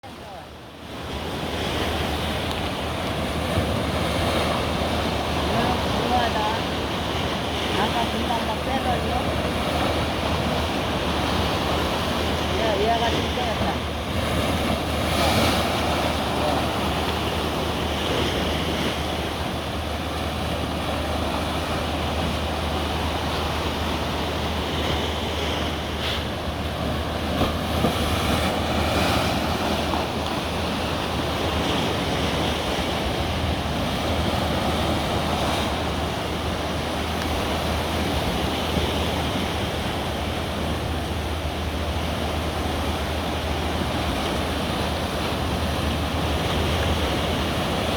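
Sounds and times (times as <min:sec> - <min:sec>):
ocean waves breaking: 0:00.0 - 0:47.9.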